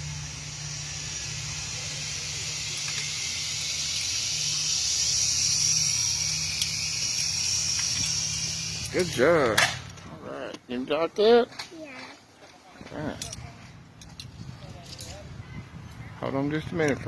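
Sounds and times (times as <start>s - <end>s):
zipline pulleys whirring on cable: 0.0s - 9.9s.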